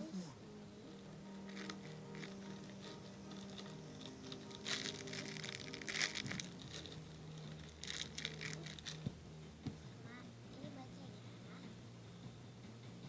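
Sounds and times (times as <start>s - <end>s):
soft background music: 0.0s - 13.0s
squishy toy rustling: 1.5s - 9.1s.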